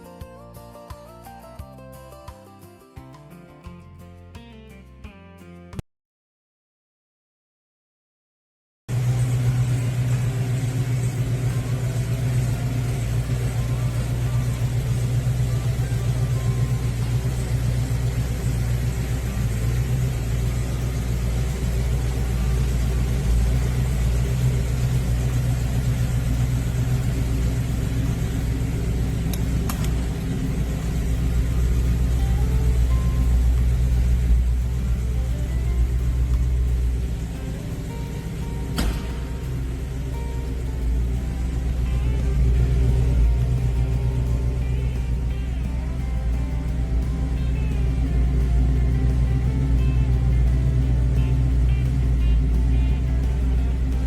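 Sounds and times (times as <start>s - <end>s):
car engine idling: 8.9s - 54.0s
faint clicks: 8.9s - 54.0s.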